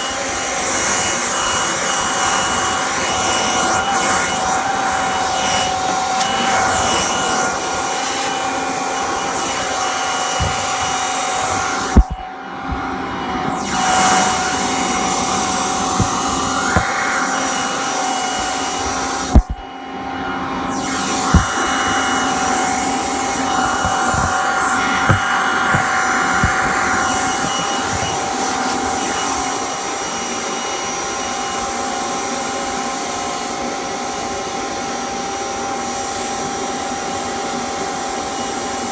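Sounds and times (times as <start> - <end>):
vacuum cleaner motor whine: 0.0 - 38.9
sharp knocks: 19.4 - 19.6.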